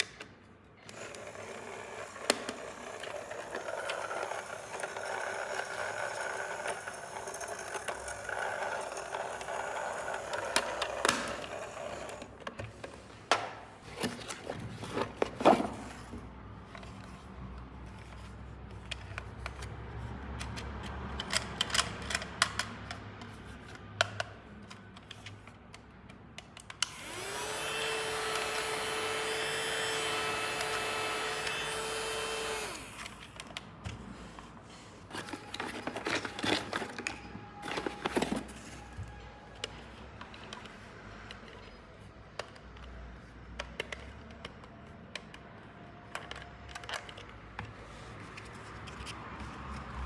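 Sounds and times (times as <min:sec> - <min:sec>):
small electric motor whirring: 0:00.9 - 0:12.4, 0:26.9 - 0:33.2.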